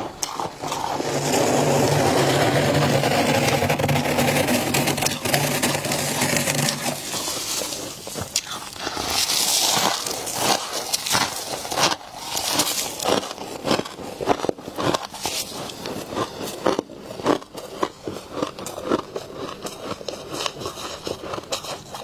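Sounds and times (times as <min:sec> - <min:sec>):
freezer frost crunching: 0:00.0 - 0:22.0.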